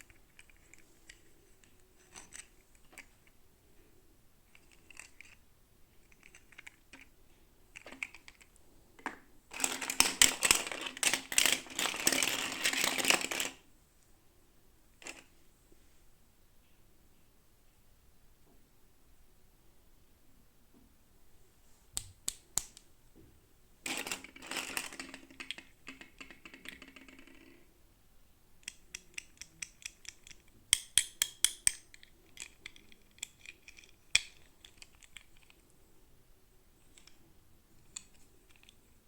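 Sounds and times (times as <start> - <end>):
plastic toy pieces clicking: 0.1 - 3.1, 4.5 - 5.4, 6.1 - 7.1, 7.8 - 8.5, 9.5 - 13.6, 23.9 - 27.6, 28.6 - 35.6.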